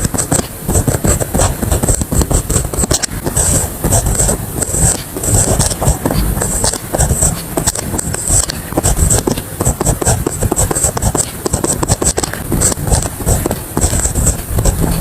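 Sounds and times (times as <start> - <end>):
pen scratching on paper: 0.0 - 15.0
pen ticks and taps: 0.0 - 15.0.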